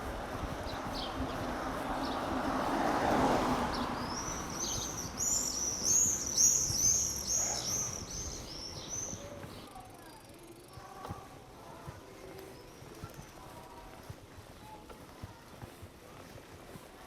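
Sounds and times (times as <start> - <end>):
wind noise: 0.0 - 9.6
songbird singing high notes: 3.7 - 9.4.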